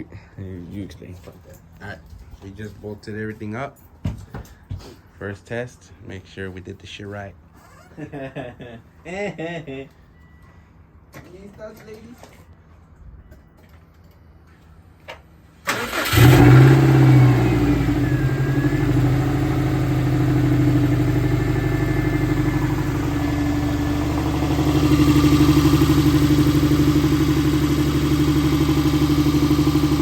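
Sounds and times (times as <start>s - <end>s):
car engine starting and idling: 15.6s - 30.0s.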